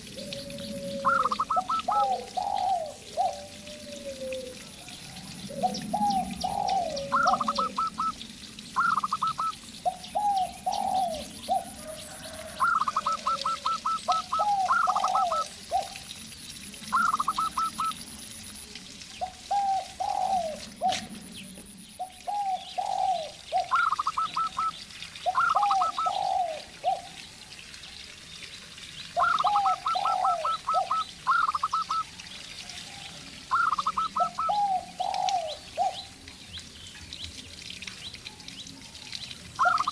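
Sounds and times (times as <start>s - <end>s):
doves cooing: 0.0s - 16.1s, 16.9s - 18.0s, 19.2s - 21.4s, 22.0s - 27.2s, 29.2s - 32.2s, 32.8s - 36.2s, 39.6s - 39.9s.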